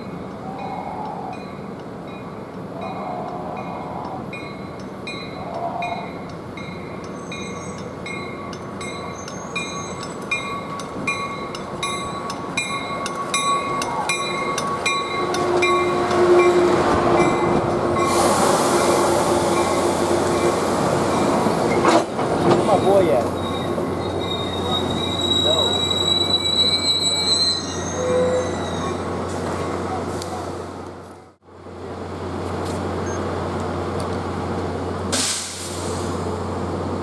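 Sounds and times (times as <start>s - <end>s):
crossing bell dinging: 0.0s - 18.3s
train wheels on rails: 0.0s - 37.0s
hiss: 35.1s - 36.3s.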